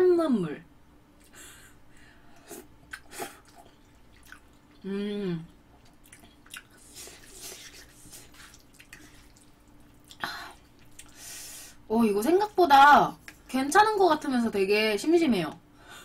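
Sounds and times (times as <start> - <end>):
wet chewing and smacking: 2.8 - 4.8, 5.5 - 11.2
person humming mm: 4.8 - 5.6.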